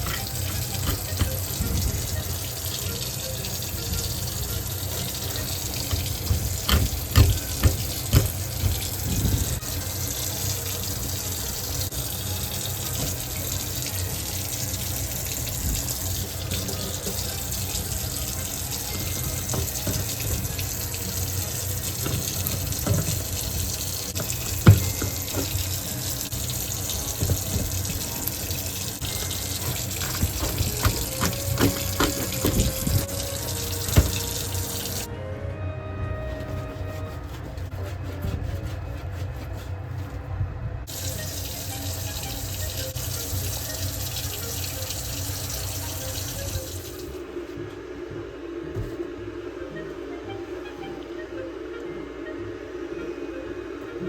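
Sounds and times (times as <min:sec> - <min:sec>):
water splashing and sloshing: 0:00.0 - 0:35.1.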